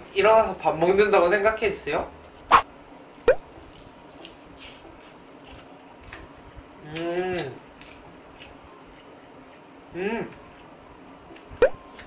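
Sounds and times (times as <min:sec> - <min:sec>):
person humming mmm: 0:06.8 - 0:07.6, 0:09.9 - 0:10.4.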